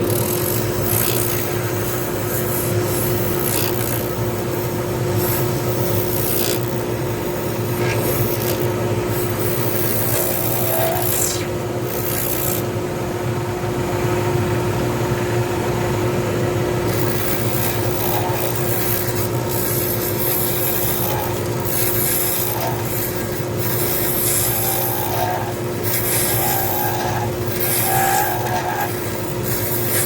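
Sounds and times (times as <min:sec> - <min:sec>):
tool scraping spinning resin: 0:00.0 - 0:12.7, 0:16.8 - 0:30.0
lathe motor hum: 0:00.0 - 0:12.8, 0:16.6 - 0:30.0.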